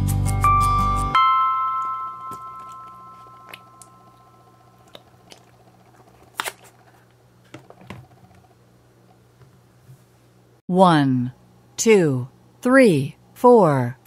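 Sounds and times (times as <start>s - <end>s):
chime note: 0.4s - 4.8s.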